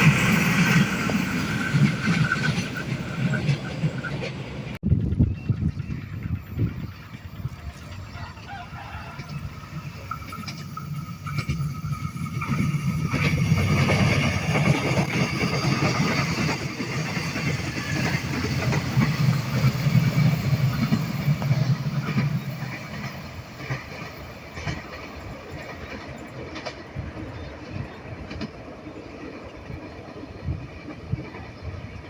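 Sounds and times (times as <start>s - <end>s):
diesel train passing: 0.0s - 32.0s.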